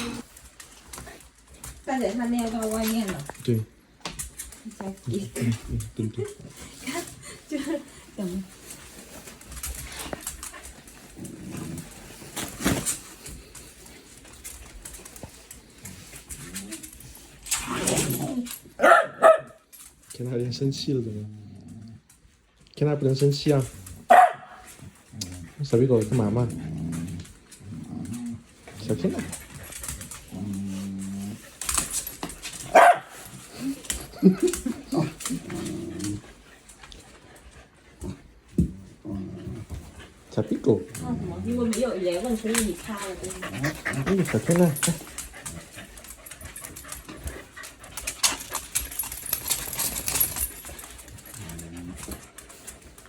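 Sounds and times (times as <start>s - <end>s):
dog grumbling: 0.0s - 0.3s, 11.1s - 12.8s, 15.9s - 18.8s, 21.0s - 22.1s, 26.2s - 29.4s, 30.2s - 31.6s, 33.4s - 36.4s, 38.0s - 40.1s, 40.8s - 46.1s, 51.2s - 52.4s
light clicks and rustling: 0.2s - 18.8s, 19.6s - 20.6s, 24.6s - 38.2s, 40.9s - 53.0s.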